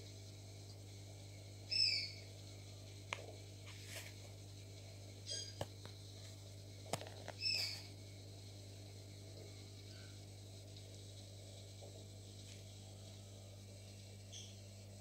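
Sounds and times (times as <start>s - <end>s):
short high bird chirps: 1.7s - 2.2s, 7.4s - 7.8s.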